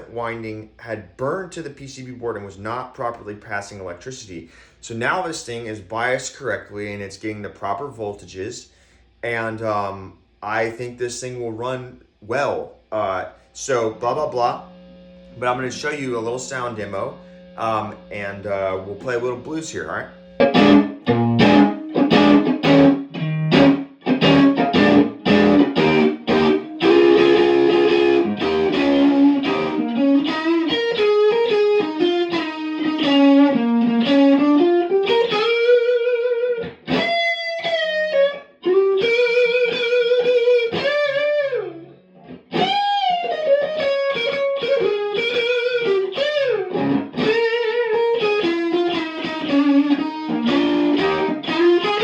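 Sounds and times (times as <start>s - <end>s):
electric guitar playing blues: 12.9s - 52.0s.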